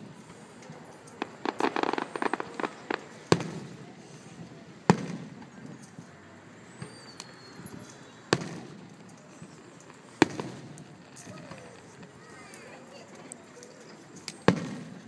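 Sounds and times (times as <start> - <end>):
firework crackles: 0.0 - 15.0
firework booms echoing: 1.2 - 5.5, 8.3 - 11.6, 14.5 - 15.0.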